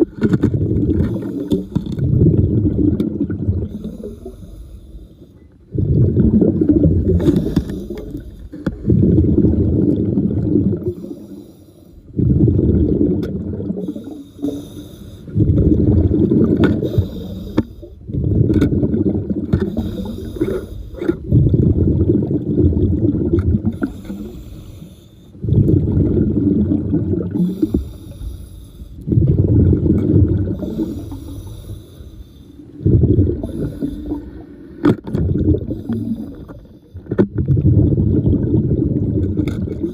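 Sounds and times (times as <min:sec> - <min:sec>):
exhaled bubbles rumbling underwater: 0:00.0 - 0:39.9
regulator inhalation hiss: 0:27.5 - 0:29.0.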